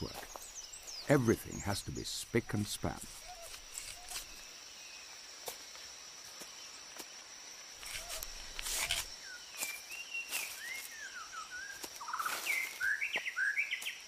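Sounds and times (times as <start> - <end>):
high insect whine: 0.0 - 14.0
rustles: 2.6 - 4.6, 7.7 - 11.0
birds whistling calls: 3.2 - 4.4, 8.0 - 14.0.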